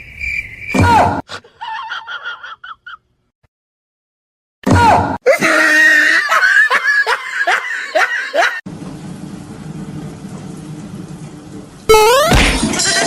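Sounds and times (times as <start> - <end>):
person laughing: 5.3 - 8.6
loud rising pitched sound: 11.9 - 12.6.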